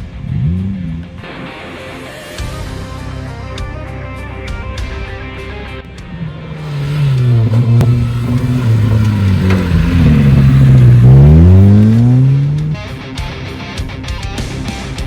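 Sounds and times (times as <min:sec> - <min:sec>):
car engine accelerating: 0:06.6 - 0:13.2.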